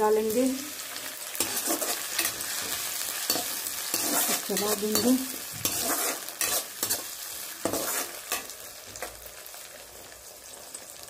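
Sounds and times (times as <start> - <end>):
onions sizzling in hot oil: 0.0 - 11.0
metal spoon scraping pan: 1.3 - 9.1.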